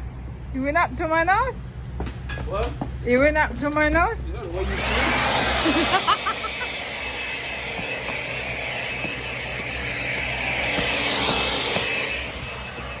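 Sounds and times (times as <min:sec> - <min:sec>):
small motor whirring: 0:04.5 - 0:13.0.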